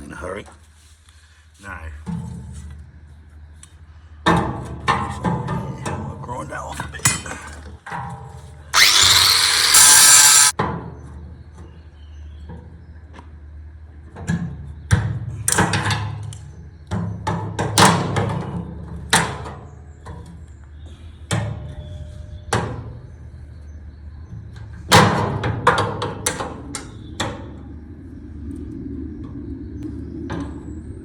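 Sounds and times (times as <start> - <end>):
angle grinder cutting steel: 8.8 - 10.5.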